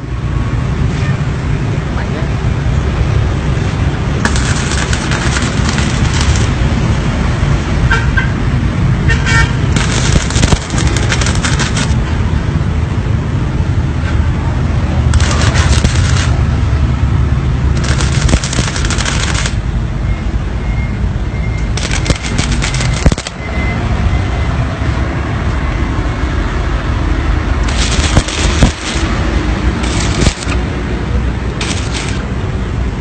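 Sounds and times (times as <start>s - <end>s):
welding arc crackling: 3.8s - 7.4s, 9.6s - 12.4s, 15.0s - 19.8s, 21.7s - 23.4s, 27.4s - 32.5s
steady low hum: 27.2s - 33.0s.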